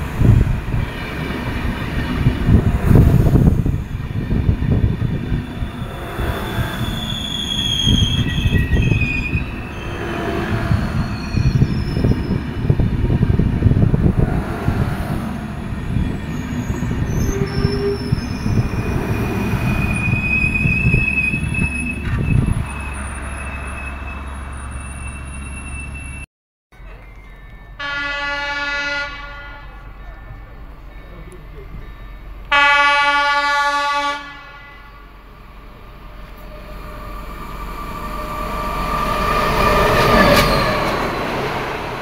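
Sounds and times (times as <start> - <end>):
train wheels rumbling on rail: 0.0 - 26.2, 26.8 - 42.0
high wheel squeals: 5.3 - 12.8, 15.4 - 26.3, 35.8 - 41.8.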